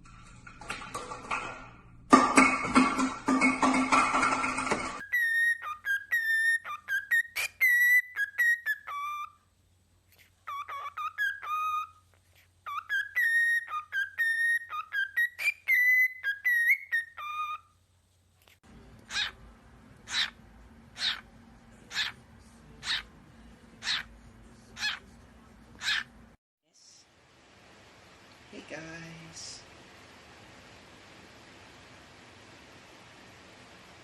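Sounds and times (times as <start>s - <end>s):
parrot whistling a tune: 5.0s - 9.4s, 10.4s - 12.0s, 12.6s - 17.7s
harsh parrot calls: 10.4s - 12.0s, 19.0s - 19.4s, 20.0s - 21.3s, 21.9s - 22.2s, 22.8s - 23.1s, 23.8s - 24.1s, 24.7s - 25.0s, 25.8s - 26.1s.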